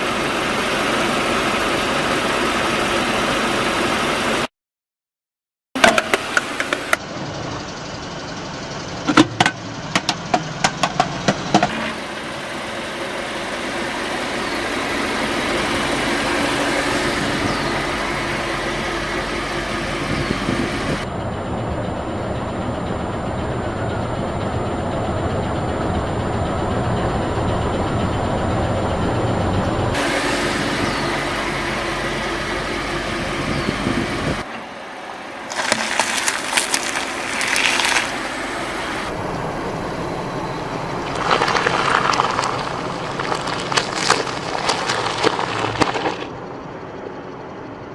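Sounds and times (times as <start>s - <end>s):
car engine running: 5.8s - 34.4s, 35.4s - 47.1s
objects crunching under tyres: 35.5s - 39.1s, 41.1s - 46.4s.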